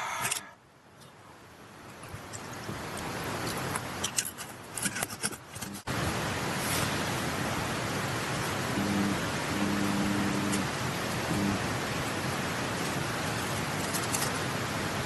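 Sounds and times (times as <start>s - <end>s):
stream water rushing: 5.9s - 15.0s.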